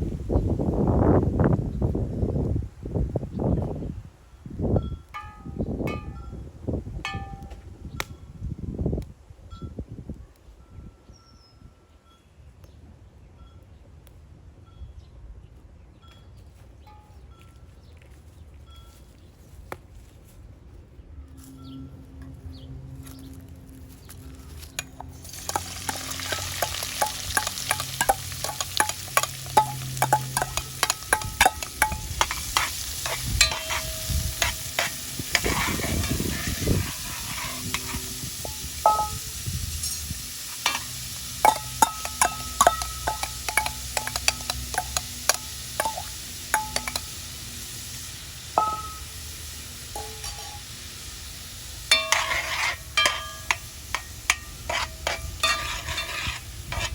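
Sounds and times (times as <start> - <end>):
food sizzling in a pan: 25.1 - 56.9
utensil scraping metal pan: 25.2 - 47.1, 50.0 - 50.7, 51.9 - 56.9.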